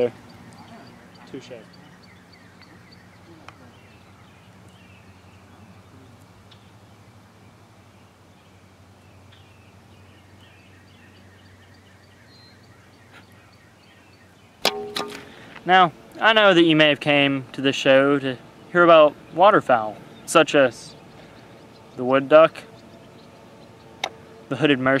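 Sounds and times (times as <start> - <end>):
birds chirping: 0.0 - 25.0
high ticking bird call: 18.3 - 25.0
low hum: 18.3 - 25.0.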